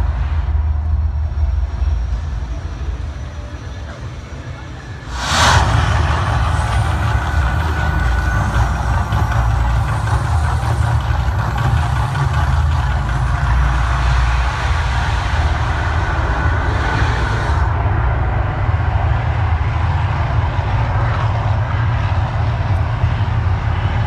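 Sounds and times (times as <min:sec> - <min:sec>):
volcano effect rumbling roar: 0:05.1 - 0:21.4.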